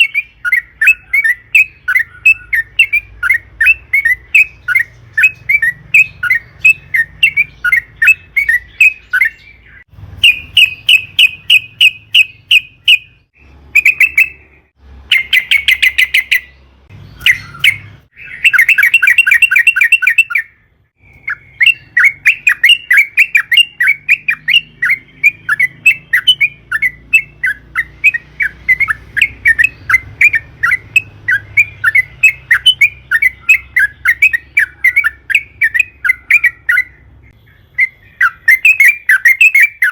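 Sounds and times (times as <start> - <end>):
bird singing repeated notes: 0.0 - 39.9.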